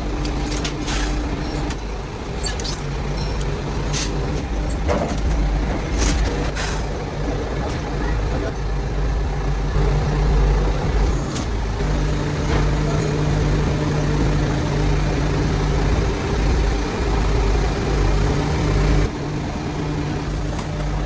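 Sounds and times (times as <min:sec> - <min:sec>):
factory machinery drone: 0:00.0 - 0:21.0
electric motor hum: 0:08.6 - 0:21.0.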